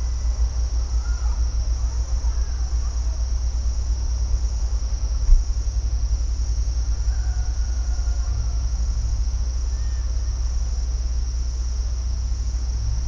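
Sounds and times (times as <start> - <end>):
insects chorus: 0.0 - 13.0
low continuous rumble: 0.0 - 13.0
faint chirps: 9.6 - 10.5.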